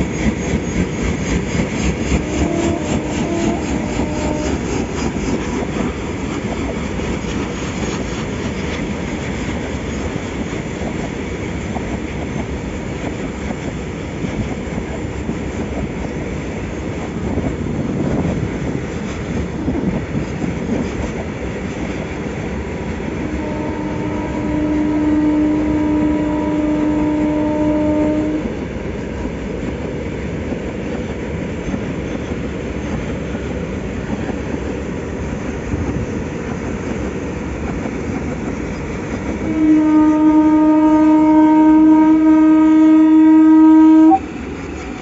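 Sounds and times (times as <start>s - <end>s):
freight wagons rumbling on rails: 0.0s - 45.0s
locomotive air horn: 2.1s - 4.7s, 23.2s - 28.6s, 39.4s - 44.3s.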